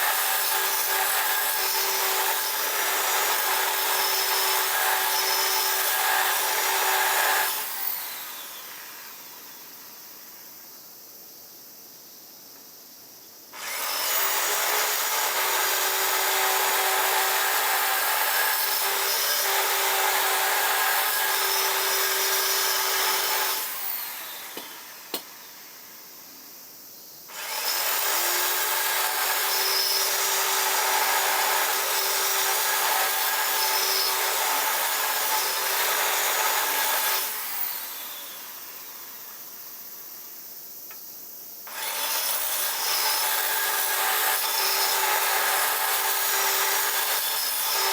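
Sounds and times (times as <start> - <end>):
electric power tool whining: 13.6 - 25.3, 41.7 - 47.9.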